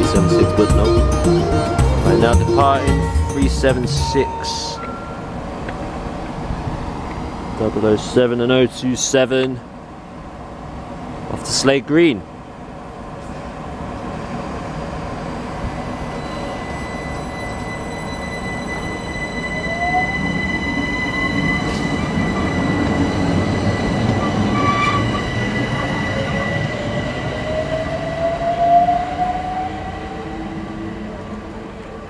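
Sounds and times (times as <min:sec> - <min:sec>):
train wheels rumbling on rail: 0:00.0 - 0:32.0
rising electric whines: 0:15.0 - 0:32.0
high electric whine: 0:15.8 - 0:28.0.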